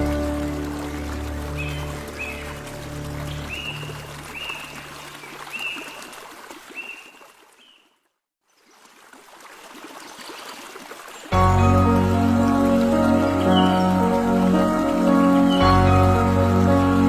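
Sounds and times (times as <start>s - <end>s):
music: 0.0s - 3.8s, 11.4s - 17.0s
trickling water-like noise: 0.0s - 7.8s, 8.5s - 17.0s.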